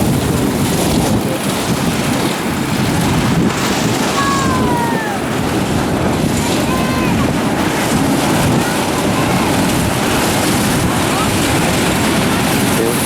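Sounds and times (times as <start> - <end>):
wind on microphone: 0.0 - 13.0
race car engines running slowly: 7.2 - 13.0.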